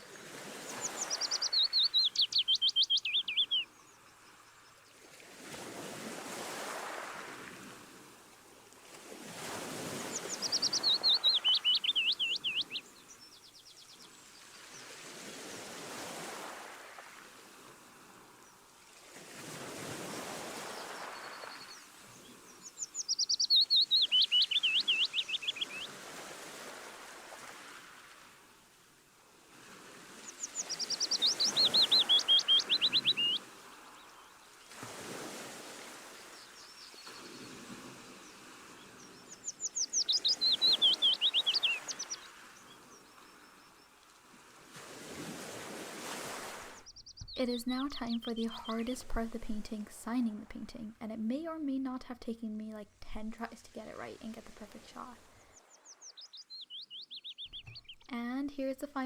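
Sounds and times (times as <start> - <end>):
sea waves washing: 0.0 - 13.3, 14.2 - 50.5
songbird trilling: 0.6 - 4.4, 10.0 - 13.7, 20.6 - 25.9, 30.2 - 34.4, 38.3 - 43.8, 46.8 - 49.4, 54.2 - 58.2.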